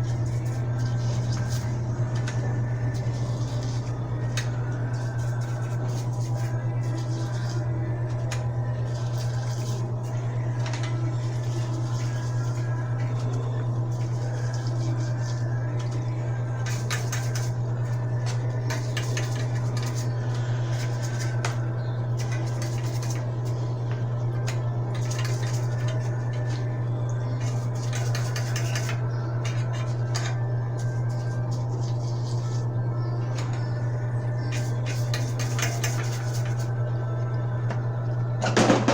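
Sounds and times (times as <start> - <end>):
low hum: 0.0 - 38.9
steel parts clinking and scraping: 34.5 - 36.7.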